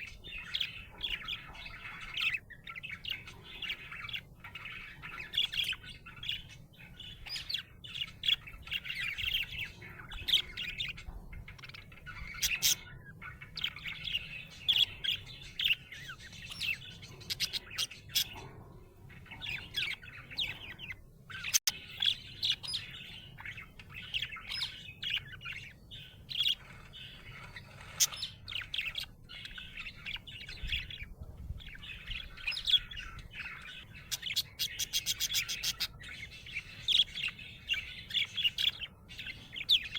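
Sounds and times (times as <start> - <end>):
budgerigar chirping and warbling: 0.0 - 39.9.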